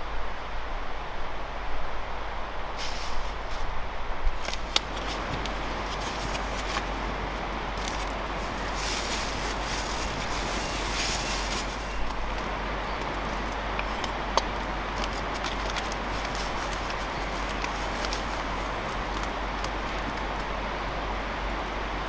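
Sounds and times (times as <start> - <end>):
campfire cooking hiss: 2.7 - 21.9
sharp crackles: 4.4 - 7.0, 7.7 - 12.4.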